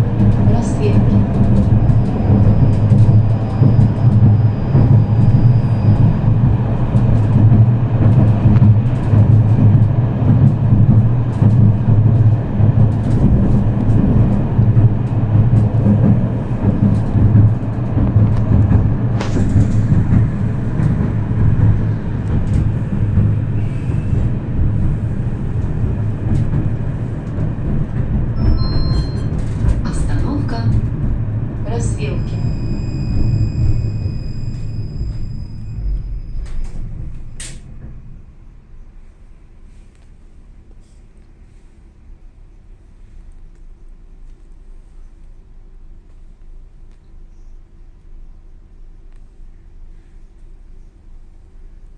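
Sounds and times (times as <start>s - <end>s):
constant low hum: 0.0s - 51.9s
tram wheels rumbling on rails: 0.0s - 51.9s.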